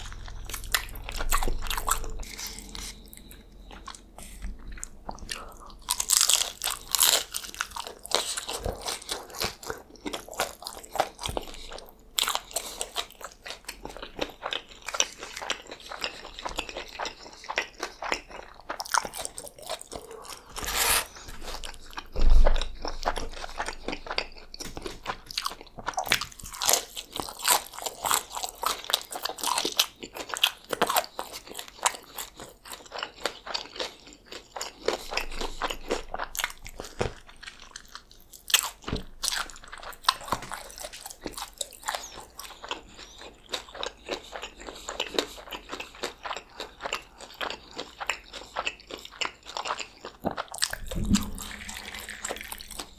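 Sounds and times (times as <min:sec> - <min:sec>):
deep thump: 0:00.0 - 0:02.9, 0:50.7 - 0:52.9
crunching and chewing tacos: 0:00.0 - 0:52.9.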